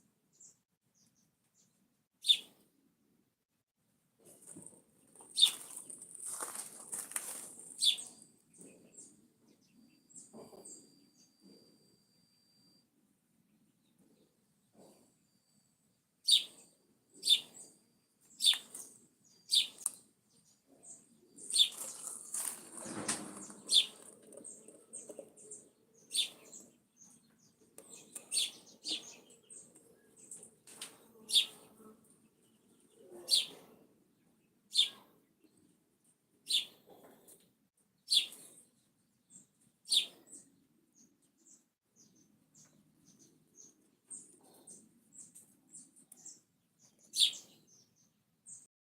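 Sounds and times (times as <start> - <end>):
bird chirping: 0.3 - 2.6, 5.1 - 6.6, 7.6 - 12.8, 13.5 - 35.8, 36.4 - 48.7
rustling noise: 4.2 - 7.9, 21.4 - 24.6.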